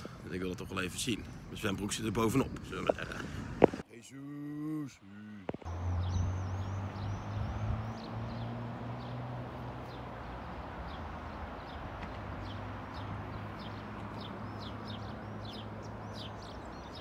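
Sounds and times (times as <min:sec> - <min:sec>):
small birds chirping: 0:05.5 - 0:17.0.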